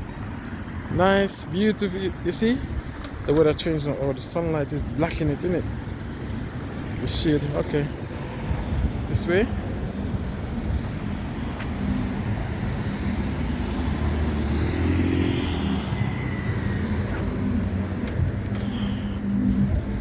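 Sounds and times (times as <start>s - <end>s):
street traffic noise: 0.0s - 20.0s
car passing by: 10.8s - 20.0s.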